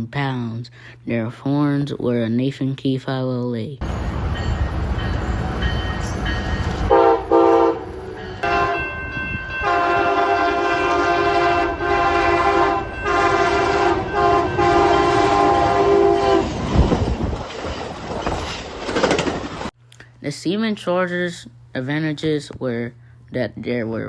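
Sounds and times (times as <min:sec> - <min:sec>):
passing train rumble: 0:03.8 - 0:19.7
locomotive air horn blasts: 0:06.0 - 0:08.8, 0:09.6 - 0:16.6.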